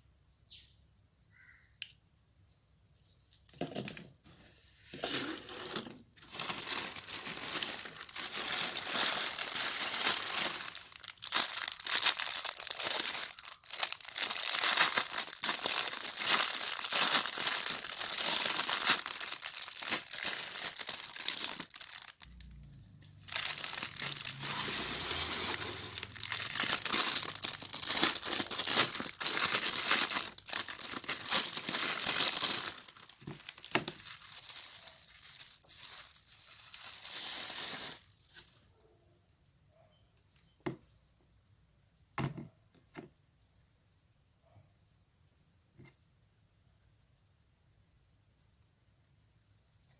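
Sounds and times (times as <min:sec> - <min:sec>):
packaging crinkling and ripping: 0:04.9 - 0:38.6.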